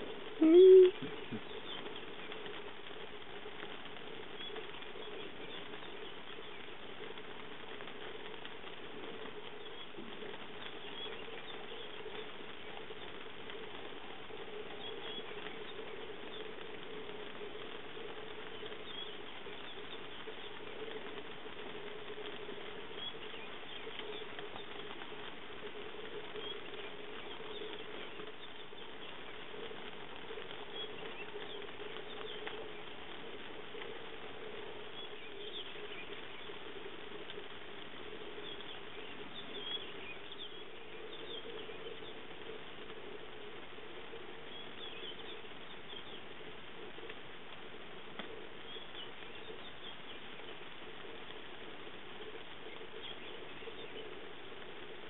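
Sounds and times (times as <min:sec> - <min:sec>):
light rain on grass and leaves: 0:00.0 - 0:55.0
faint high chirps: 0:00.4 - 0:01.6.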